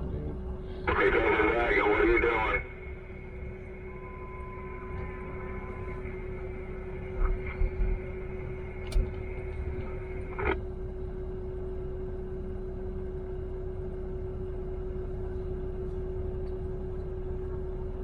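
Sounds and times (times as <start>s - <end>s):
truck cab hum: 0.0s - 18.0s
higher steady tone: 0.9s - 11.3s.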